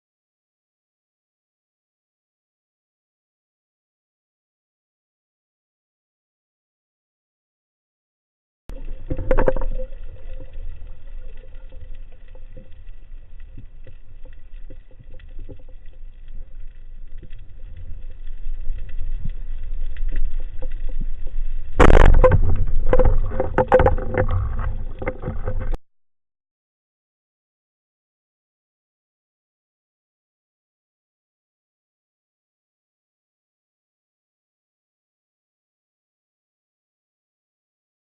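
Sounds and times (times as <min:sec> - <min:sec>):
low rumbling water: 0:08.7 - 0:25.8.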